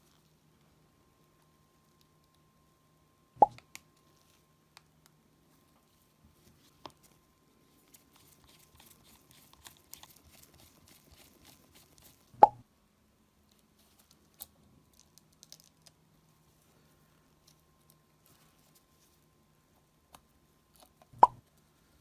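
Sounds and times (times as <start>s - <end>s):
small parts and tools clicking: 13.9s - 16.0s.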